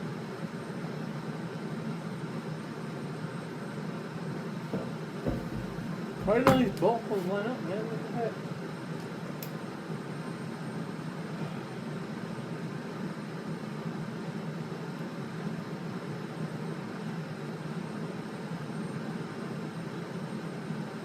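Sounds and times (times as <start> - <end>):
machine droning hum: 3.9 - 8.9.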